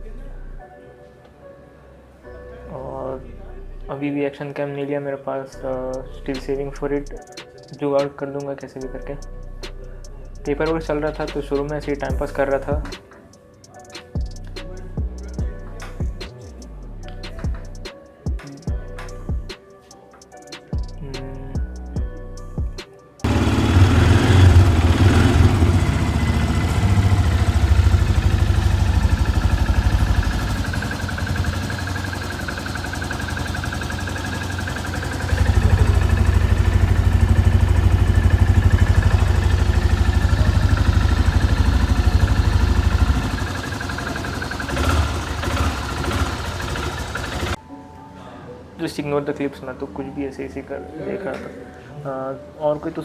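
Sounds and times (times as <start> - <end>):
motorcycle engine running: 23.3 - 47.6.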